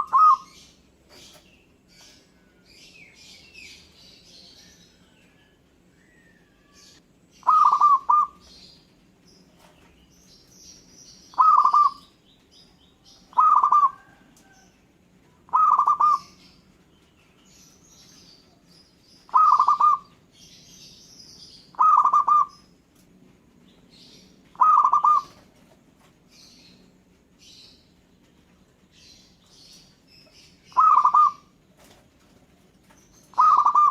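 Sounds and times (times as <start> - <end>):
dove cooing: 0.0 - 1.4, 6.1 - 8.6, 11.3 - 12.1, 13.3 - 14.5, 15.5 - 16.5, 19.3 - 20.2, 21.7 - 22.7, 24.5 - 25.6, 30.7 - 31.9, 33.3 - 33.9
small birds chirping: 0.0 - 33.9.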